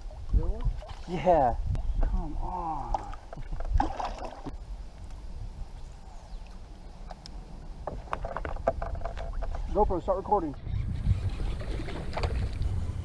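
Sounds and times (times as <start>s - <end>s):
water sloshing around kayak: 0.0s - 2.2s, 2.8s - 4.7s.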